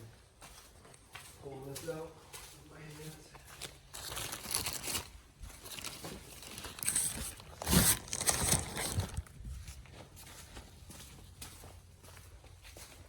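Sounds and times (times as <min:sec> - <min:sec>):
metal and rags rustling and scraping: 0:00.9 - 0:11.4.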